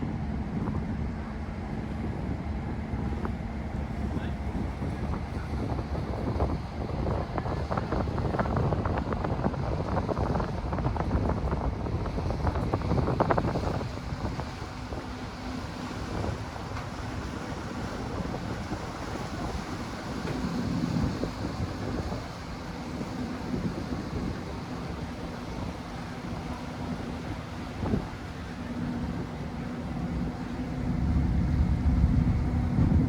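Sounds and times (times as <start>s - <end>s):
ferry engine drone: 0.0s - 33.0s
wind buffeting microphone: 0.0s - 33.0s.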